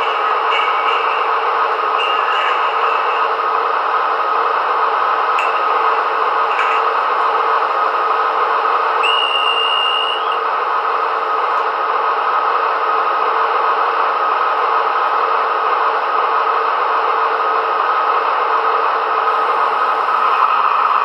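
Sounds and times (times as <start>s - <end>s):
model train diesel motor sound: 0.0s - 21.0s
high whistle: 9.0s - 10.4s.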